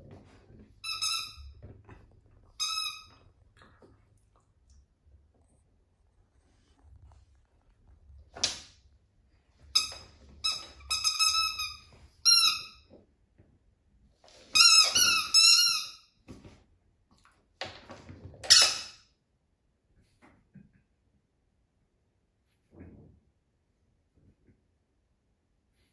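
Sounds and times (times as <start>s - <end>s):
squeaky dog toy squeaking: 0.8s - 1.6s, 2.6s - 3.2s, 9.7s - 12.8s, 14.5s - 16.1s, 18.4s - 19.0s.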